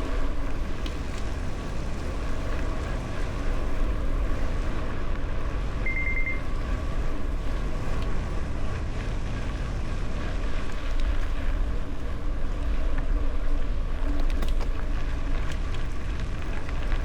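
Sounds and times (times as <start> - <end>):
wind buffeting microphone: 0.0 - 17.0
faint ticks: 0.4 - 1.4, 10.6 - 13.2
short high beep: 5.8 - 6.4.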